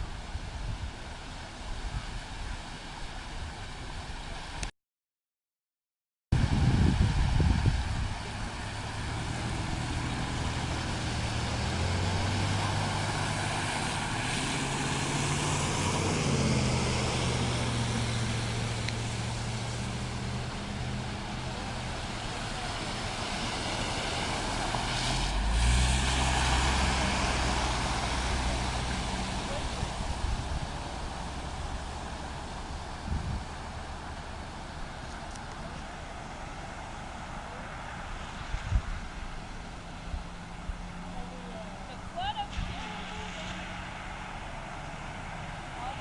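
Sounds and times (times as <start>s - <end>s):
motor vehicle engine running: 6.4s - 46.0s.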